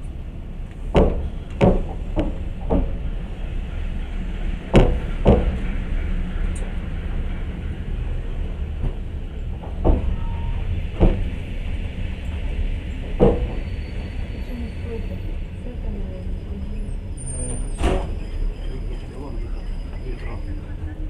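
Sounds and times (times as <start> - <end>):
train wheels rumbling on track: 0.0 - 21.0
wheels clacking over rail joints: 0.6 - 14.8.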